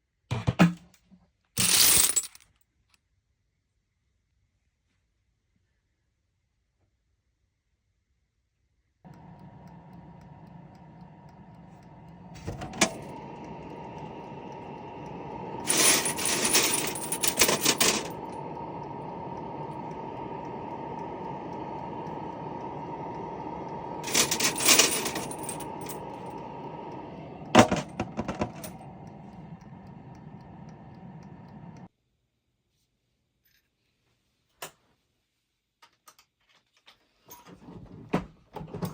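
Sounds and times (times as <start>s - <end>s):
mechanical hum: 9.1s - 31.9s.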